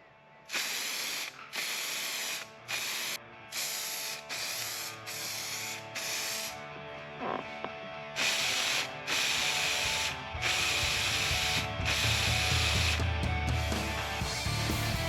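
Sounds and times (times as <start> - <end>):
faint background music: 0.0 - 15.0
spray paint hissing: 0.5 - 6.5.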